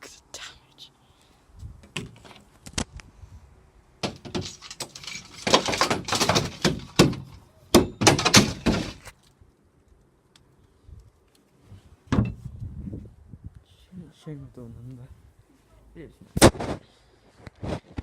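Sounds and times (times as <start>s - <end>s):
sharp knocks: 4.0s - 9.0s
thuds: 4.0s - 9.1s, 12.1s - 12.4s.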